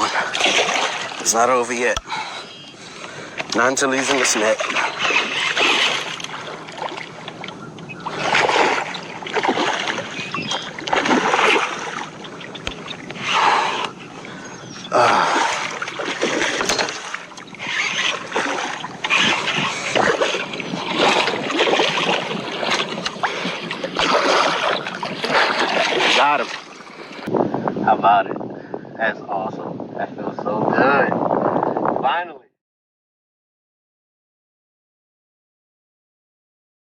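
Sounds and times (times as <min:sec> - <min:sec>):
fish splashing at water surface: 0:00.0 - 0:01.2, 0:04.0 - 0:13.9, 0:15.0 - 0:27.3.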